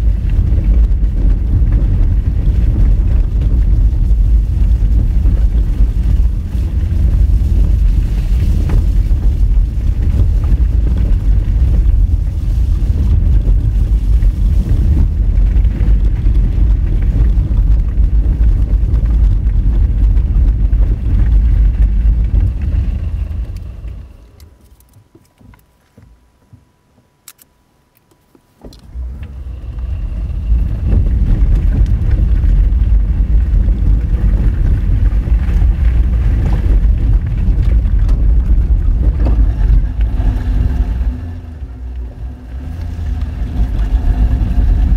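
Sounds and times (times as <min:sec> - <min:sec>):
tyres rumbling on gravel: 0:00.0 - 0:26.1, 0:28.6 - 0:44.9
clicks: 0:27.2 - 0:29.4.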